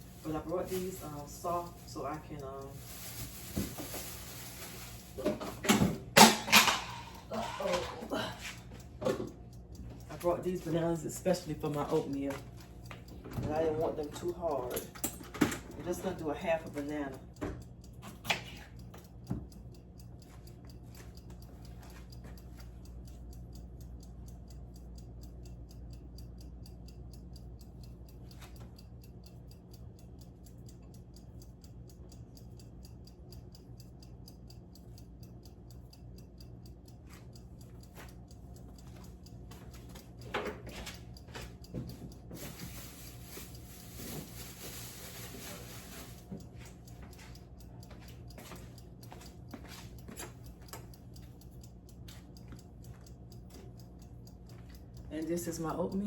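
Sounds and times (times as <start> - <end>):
low electrical hum: 0.0 - 56.0
fast even ticking: 9.6 - 12.9, 15.8 - 18.0, 46.4 - 56.0.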